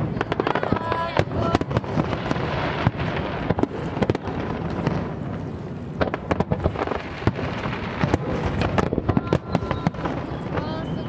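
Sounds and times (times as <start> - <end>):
sharp firework cracks: 0.0 - 10.8
low rumble of fireworks: 0.0 - 11.0.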